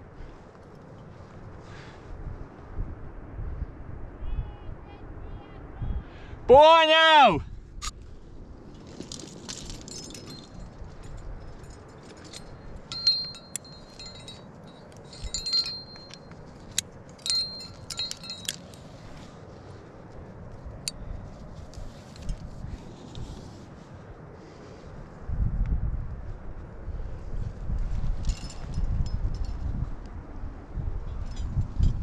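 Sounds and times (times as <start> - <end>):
climbing gear clinking and jangling: 8.8 - 18.9, 28.2 - 29.6.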